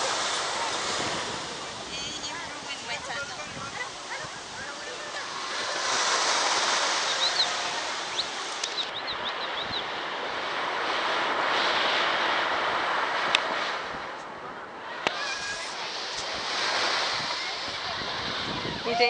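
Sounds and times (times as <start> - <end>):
ocean surf washing in: 0.0 - 19.0.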